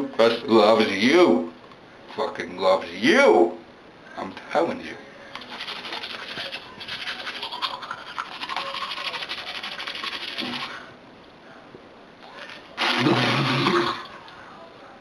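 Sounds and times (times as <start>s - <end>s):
toothbrush scrubbing teeth: 5.4s - 10.8s, 12.8s - 14.2s.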